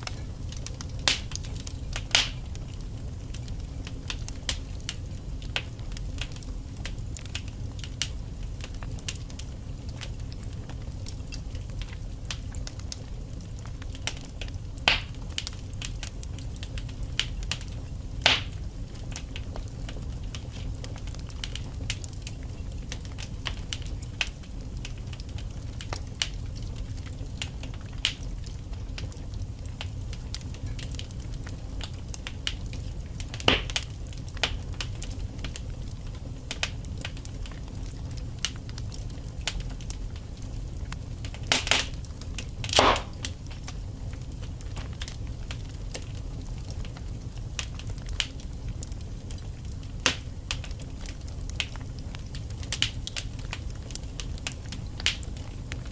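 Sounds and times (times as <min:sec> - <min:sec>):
logs crackling in fireplace: 0:00.0 - 0:55.9
low rumble of flames: 0:00.0 - 0:55.9
logs snapping: 0:42.7 - 0:43.3.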